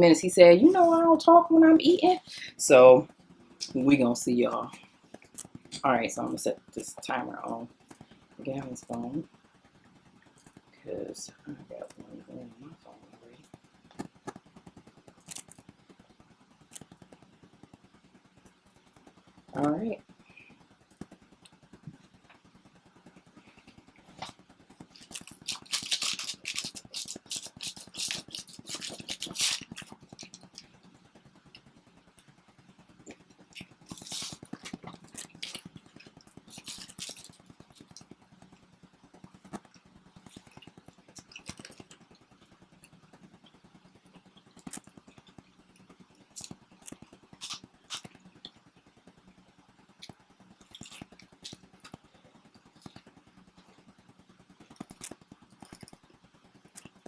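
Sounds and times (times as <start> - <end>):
faint steady hum: 0.0 - 57.0
small clicks and scrapes: 4.6 - 5.9, 6.7 - 32.4, 33.0 - 57.0
people biting and chewing pizza: 15.1 - 15.6, 24.1 - 30.7, 33.1 - 38.2, 39.5 - 42.0, 46.3 - 48.2.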